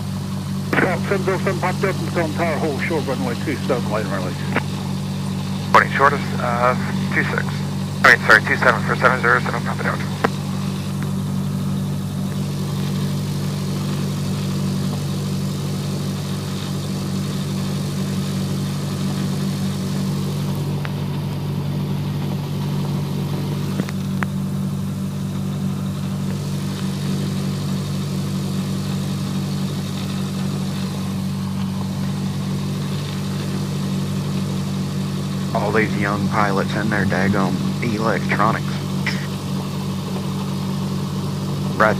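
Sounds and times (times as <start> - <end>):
small plane engine idling: 0.0 - 41.9.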